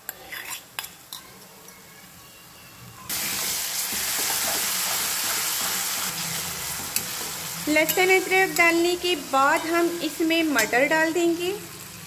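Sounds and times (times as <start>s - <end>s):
paste sizzling in hot oil: 3.1s - 12.0s.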